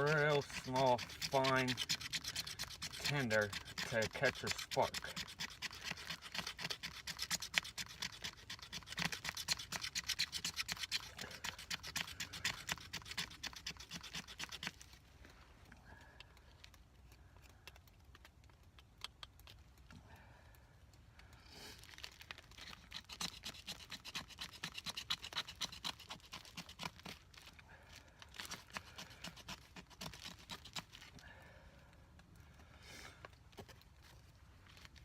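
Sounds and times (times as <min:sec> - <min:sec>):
knife scraping wood: 0:00.0 - 0:15.0, 0:21.6 - 0:31.2.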